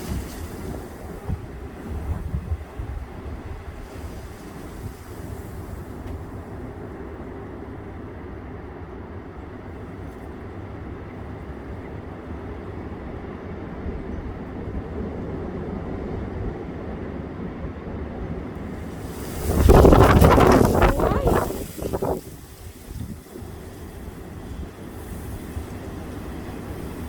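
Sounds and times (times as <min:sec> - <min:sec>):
strong wind buffeting microphone: 0:00.0 - 0:07.0, 0:18.4 - 0:27.0.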